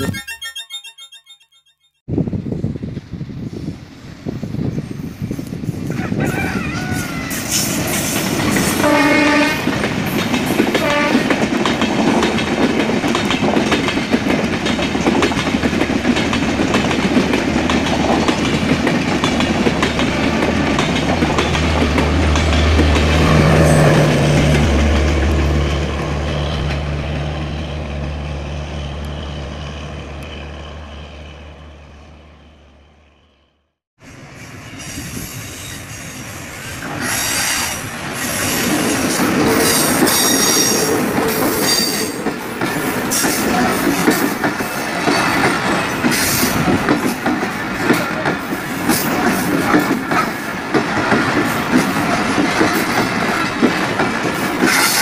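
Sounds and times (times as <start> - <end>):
low train drone: 2.1 - 55.0
train coaches clattering over rails: 5.7 - 28.1, 36.7 - 55.0
train horn: 8.7 - 9.8, 10.7 - 11.4.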